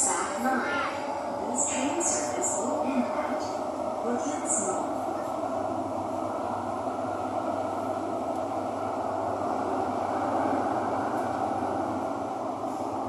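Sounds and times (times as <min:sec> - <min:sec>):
train running inside carriage: 0:00.0 - 0:13.0.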